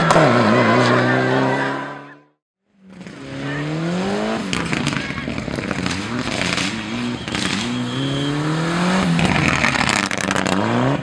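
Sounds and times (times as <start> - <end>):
rally car engine at full throttle: 0.0 - 11.0.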